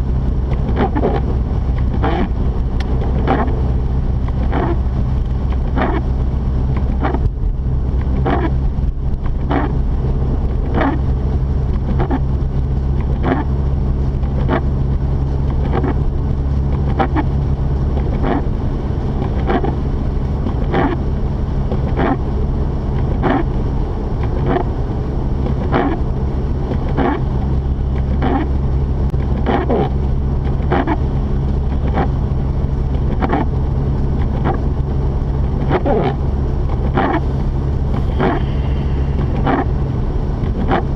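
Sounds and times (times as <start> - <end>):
car engine drone: 0.0 - 40.9
tyres on snowy road: 0.0 - 40.9
windshield wipers swishing: 0.1 - 40.9.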